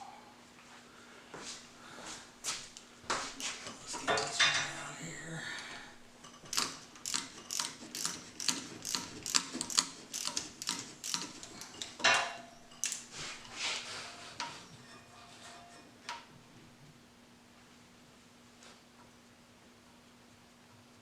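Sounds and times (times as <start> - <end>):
hand ratchet clicking: 6.4 - 12.0, 12.8 - 13.1.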